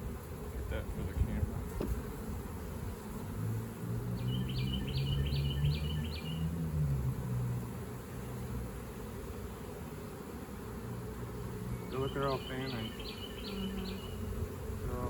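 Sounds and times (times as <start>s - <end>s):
songbird singing: 3.5s - 8.5s, 11.2s - 15.0s.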